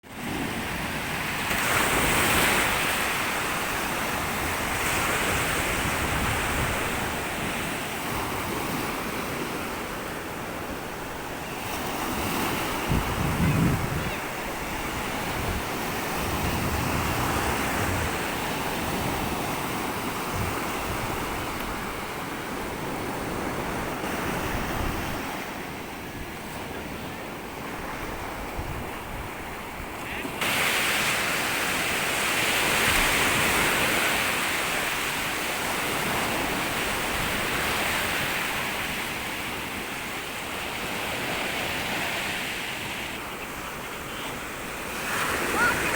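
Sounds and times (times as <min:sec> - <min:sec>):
waves washing onto beach: 0:00.0 - 0:45.9
wind buffeting microphone: 0:12.8 - 0:19.4, 0:20.2 - 0:22.0.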